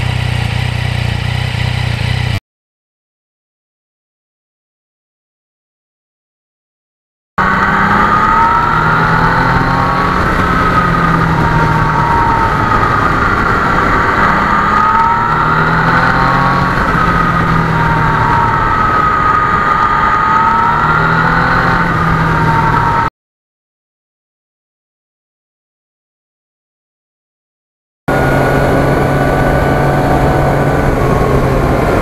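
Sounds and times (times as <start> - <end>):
motorcycle running: 0.0 - 2.4, 7.4 - 23.1, 28.1 - 32.0
wind and road noise: 0.0 - 2.4, 7.4 - 23.1, 28.1 - 32.0
rising and falling whine: 7.4 - 23.1, 28.1 - 32.0.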